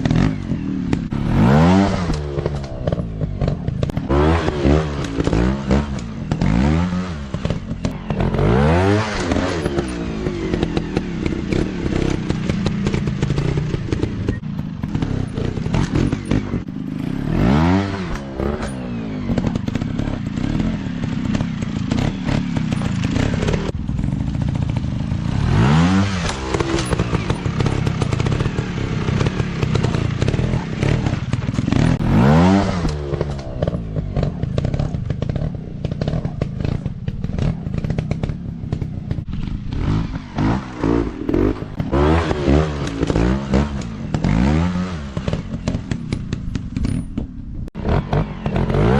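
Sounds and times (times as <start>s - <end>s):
dirt bike engines revving: 0.0s - 48.9s
clattering and thumps: 45.0s - 48.7s.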